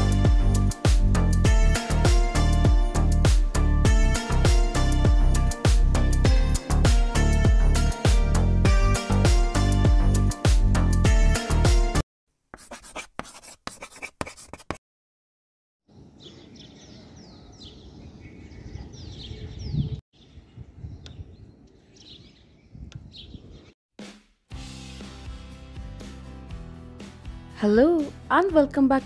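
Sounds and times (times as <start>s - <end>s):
outdoor background noise: 15.9s - 23.1s
birds chirping: 15.9s - 23.8s.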